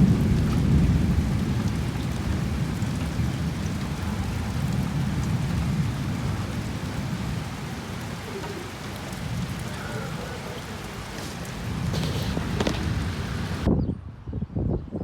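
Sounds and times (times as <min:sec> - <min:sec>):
steady rain hiss: 0:00.0 - 0:13.7
thunder rumbling: 0:00.0 - 0:13.7.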